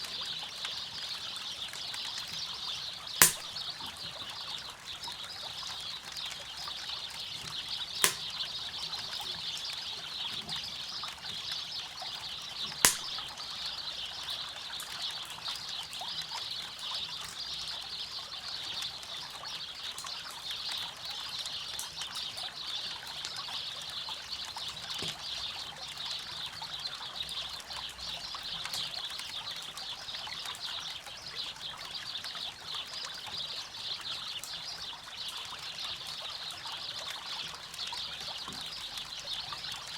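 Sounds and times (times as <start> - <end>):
campfire popping: 3.2 - 3.5, 8.0 - 8.4, 12.9 - 13.3.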